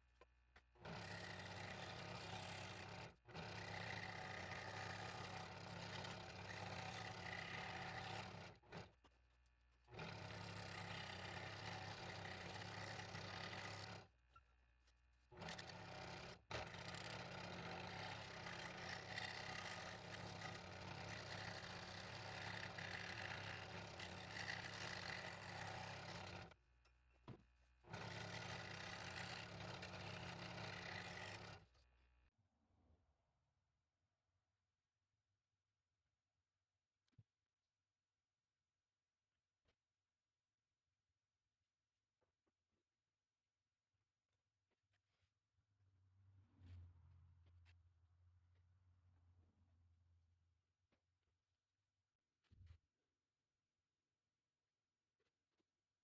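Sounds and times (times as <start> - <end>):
scroll saw cutting wood: 0.8 - 9.1, 9.9 - 14.1, 15.3 - 26.6, 27.9 - 31.7.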